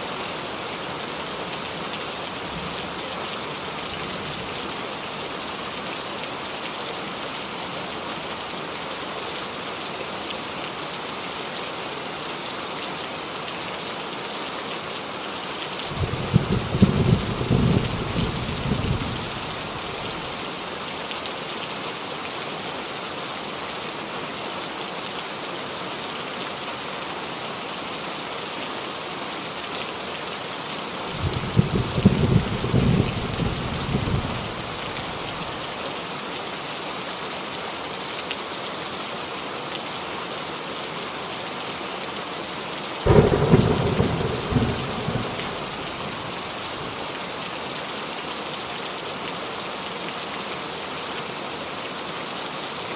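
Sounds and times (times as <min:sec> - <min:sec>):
rain on a roof: 0:00.0 - 0:52.9
thunder rumbling: 0:31.2 - 0:34.8, 0:43.1 - 0:46.2.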